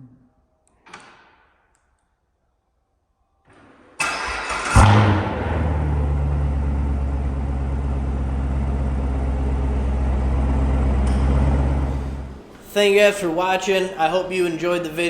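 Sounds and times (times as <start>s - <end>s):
car engine starting and idling: 4.0s - 12.5s.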